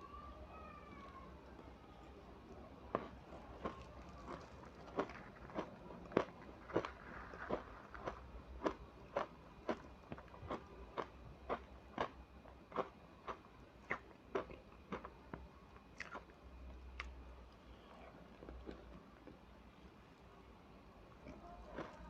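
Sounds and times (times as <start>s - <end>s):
ice being chewed: 2.9s - 19.5s, 21.2s - 22.0s.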